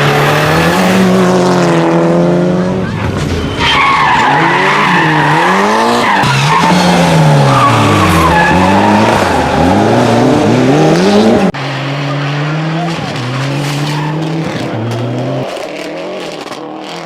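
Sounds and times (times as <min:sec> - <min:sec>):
rally car engine revving: 0:00.0 - 0:17.0
tyre and surface noise: 0:12.7 - 0:17.0.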